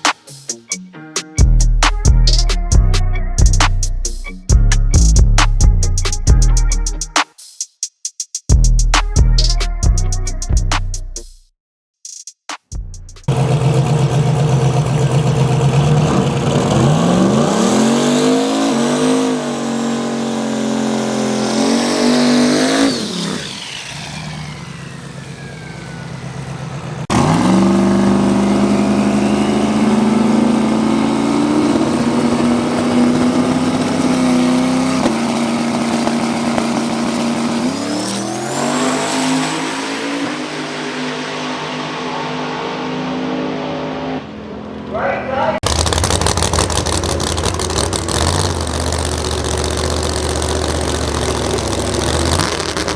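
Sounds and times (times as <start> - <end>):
engine at high revs: 13.2 - 44.8, 45.6 - 52.9
drag race car engine at full throttle: 13.2 - 44.9, 45.6 - 52.9.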